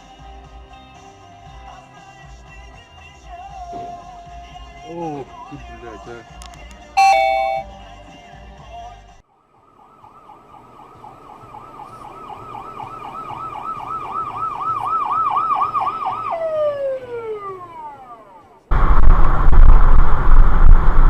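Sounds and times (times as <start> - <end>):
emergency vehicle siren: 7.0 - 7.6, 9.9 - 18.5.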